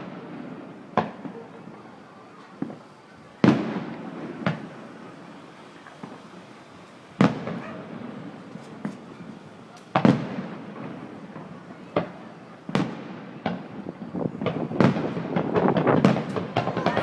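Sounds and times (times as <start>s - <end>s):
firework bangs with echoing rumble: 0.0s - 17.0s.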